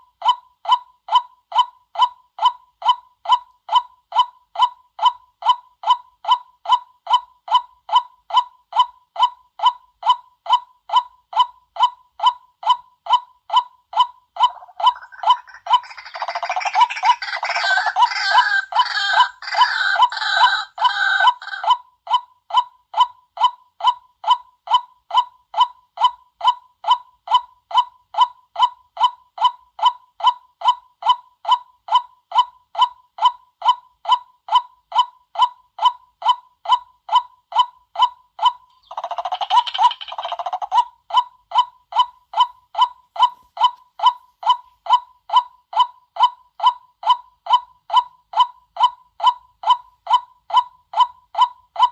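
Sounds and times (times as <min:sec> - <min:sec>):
waterhen kwak calls: 0:14.4 - 0:21.7, 0:38.7 - 0:40.8
harsh chattering bird calls: 0:14.5 - 0:21.6, 0:38.7 - 0:40.8.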